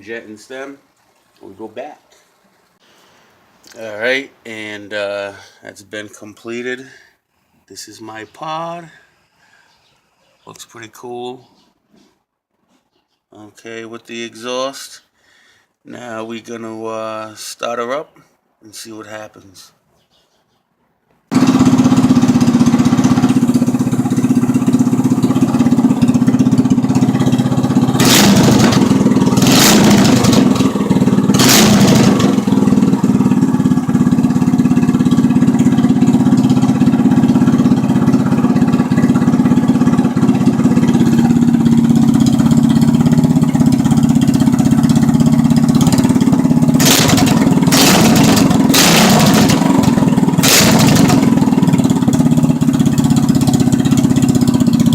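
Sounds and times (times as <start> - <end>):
loud small engine running: 21.3 - 54.9.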